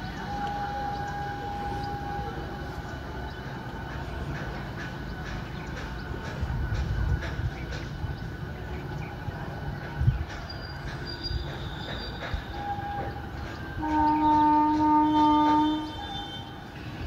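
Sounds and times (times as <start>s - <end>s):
train horn blast: 0.0s - 2.8s, 11.7s - 17.0s
train rumbling: 0.0s - 17.0s.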